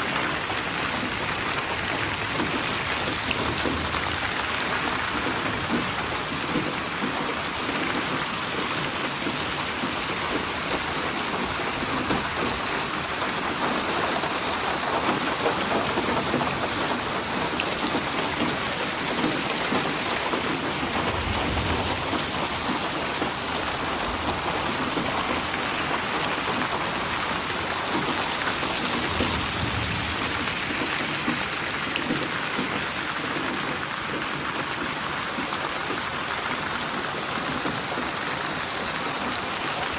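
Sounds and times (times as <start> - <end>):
heavy rain falling: 0.0 - 39.9
distant thunder rumbles: 19.2 - 32.4.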